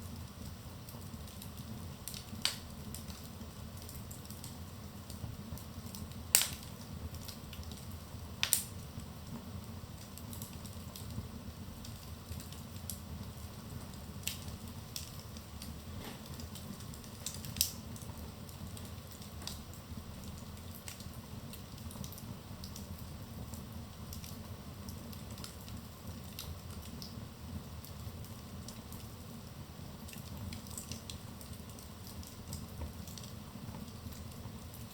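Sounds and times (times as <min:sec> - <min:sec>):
fire crackles and pops: 0:00.0 - 0:34.9
low rumble of flames: 0:00.0 - 0:34.9.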